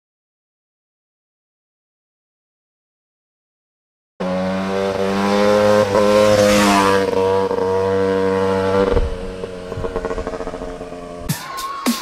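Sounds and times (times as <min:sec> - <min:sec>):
dirt bike engine revving: 0:04.2 - 0:11.3.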